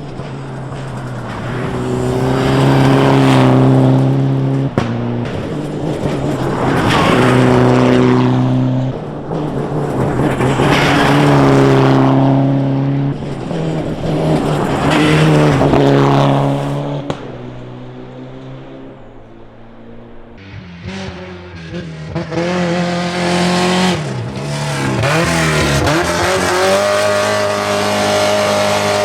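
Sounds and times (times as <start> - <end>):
sharp crack: 0.0 - 12.2, 13.2 - 20.6
rally car engines passing: 0.0 - 29.0.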